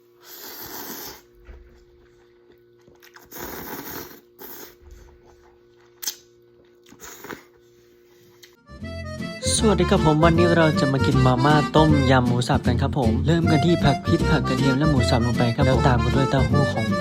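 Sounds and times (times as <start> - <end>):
chewing and slurping: 0.2 - 7.7.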